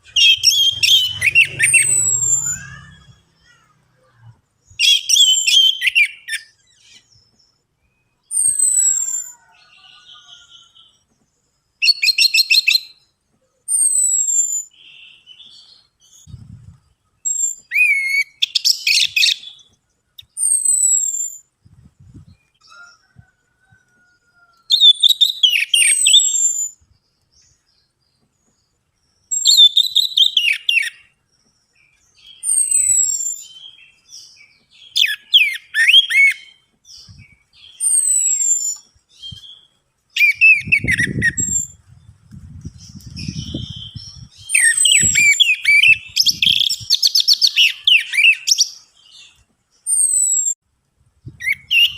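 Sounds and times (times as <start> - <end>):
thrush singing rapid whistles: 0.0 - 3.4, 17.2 - 21.5, 29.3 - 31.1, 34.9 - 36.6, 37.6 - 41.8, 43.1 - 48.8, 51.3 - 51.9
low rumbling noise: 0.0 - 4.5.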